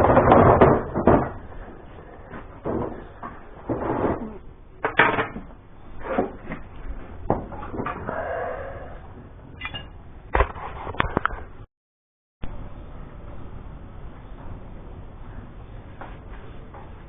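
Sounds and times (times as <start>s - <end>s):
metal clanks and knocks: 0.0s - 8.1s
brief squeak: 9.6s - 9.9s.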